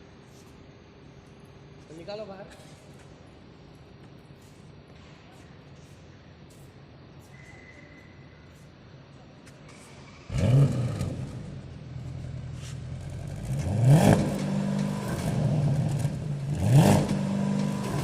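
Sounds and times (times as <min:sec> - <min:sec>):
car engine starting and revving: 0:10.0 - 0:18.0.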